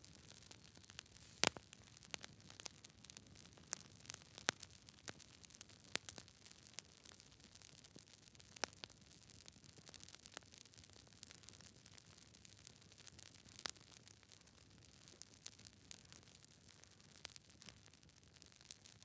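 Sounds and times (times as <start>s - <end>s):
campfire crackling: 0.3s - 8.7s
soft hiss: 1.0s - 1.8s.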